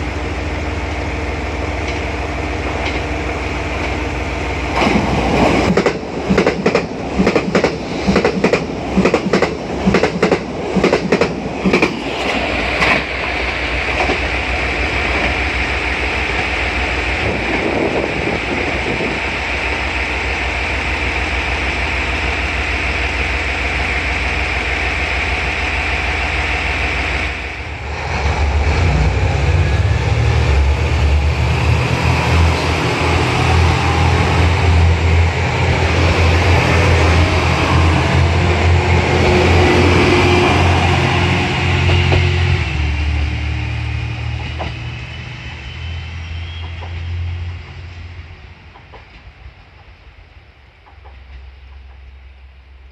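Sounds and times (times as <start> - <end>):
train running hum: 0.0 - 52.9
train wheels clacking: 4.7 - 14.3, 38.2 - 42.8, 46.4 - 47.2.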